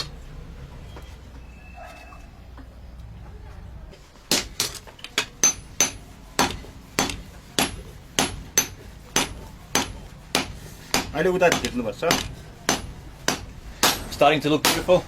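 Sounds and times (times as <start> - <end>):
hammer striking blade on anvil: 4.3 - 15.0.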